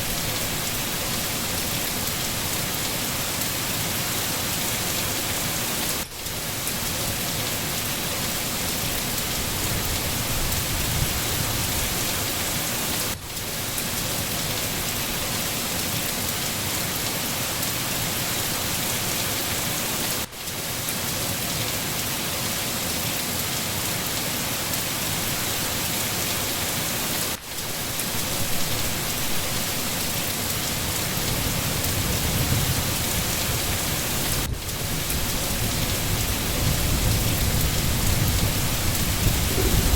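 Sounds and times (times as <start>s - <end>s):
heavy rain hissing: 0.0s - 39.9s
low rumble: 39.1s - 39.9s.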